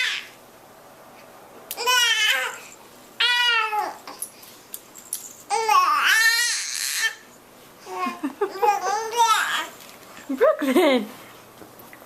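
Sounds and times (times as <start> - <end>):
baby cooing: 1.8 - 2.6, 3.2 - 4.2, 5.5 - 7.3.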